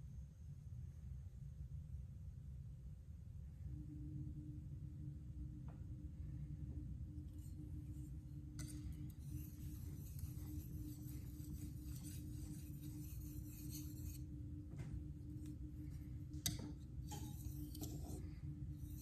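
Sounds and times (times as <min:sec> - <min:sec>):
knife scraping on whetstone: 0:08.6 - 0:14.3, 0:16.4 - 0:19.0.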